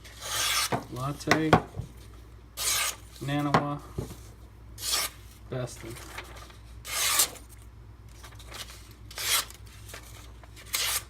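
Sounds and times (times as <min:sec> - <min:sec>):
knife slicing paper: 0:04.8 - 0:07.6, 0:08.4 - 0:11.0.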